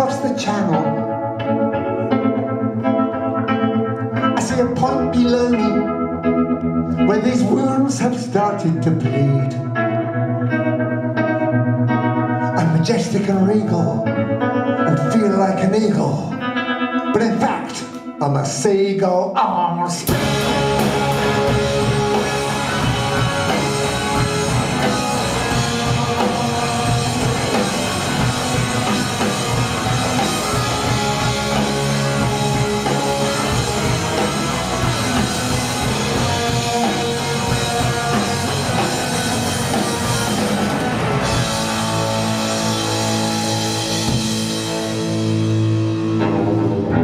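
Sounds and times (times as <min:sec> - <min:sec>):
bass guitar: 0:00.0 - 0:18.6, 0:19.5 - 0:47.0
electric guitars: 0:00.0 - 0:47.0
drum kit: 0:20.0 - 0:47.0.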